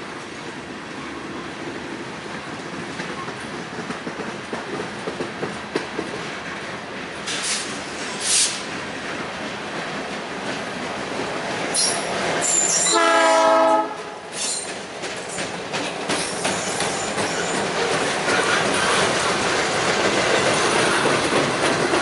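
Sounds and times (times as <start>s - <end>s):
train wheels clattering: 2.4s - 22.0s
high wheel squeals: 11.8s - 13.0s, 16.2s - 17.7s
locomotive horn blast: 12.8s - 14.2s.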